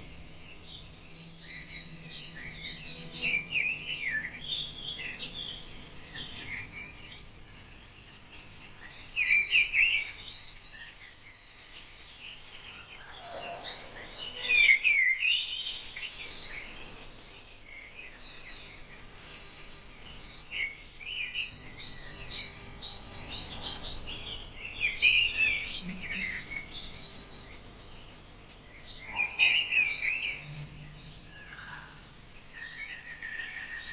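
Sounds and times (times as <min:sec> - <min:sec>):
birds chirping and singing: 0:00.0 - 0:33.9.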